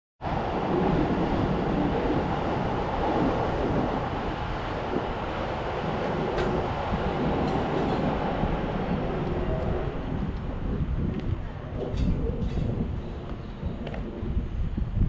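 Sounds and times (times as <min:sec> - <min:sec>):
train rumbling: 0:00.2 - 0:15.0.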